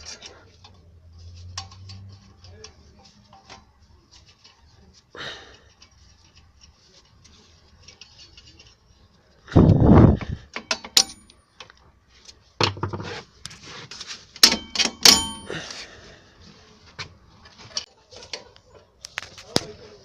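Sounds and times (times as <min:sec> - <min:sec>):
metal tools clanking: 0:10.6 - 0:11.4, 0:14.4 - 0:15.8
loud scraping and rustling: 0:12.8 - 0:16.7.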